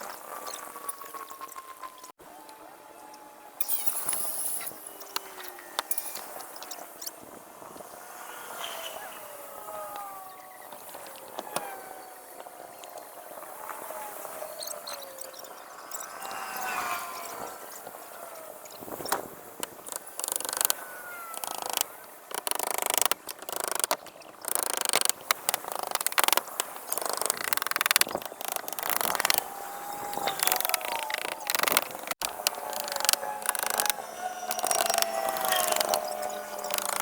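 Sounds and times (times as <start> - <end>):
brief squeaky tones: 32.6 - 37.0.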